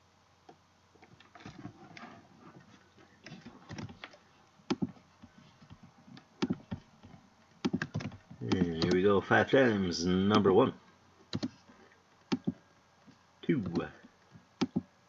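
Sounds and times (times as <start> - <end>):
keyboard typing: 4.7 - 5.0, 5.6 - 9.1, 11.3 - 11.6, 12.3 - 12.6, 13.6 - 14.9
sharp keyboard clicks: 4.7 - 5.0, 6.2 - 6.8, 7.6 - 9.1, 11.3 - 11.6, 12.3 - 12.6, 14.6 - 14.9.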